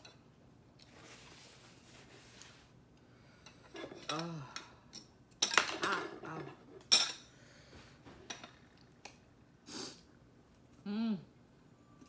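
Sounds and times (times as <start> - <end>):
utensils clinking on dishes: 3.4 - 7.3.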